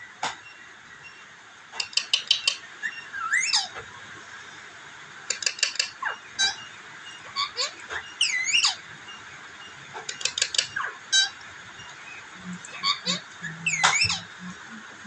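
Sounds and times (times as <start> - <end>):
parrot clicking chirps: 1.8 - 2.6, 5.3 - 5.9, 10.1 - 10.8.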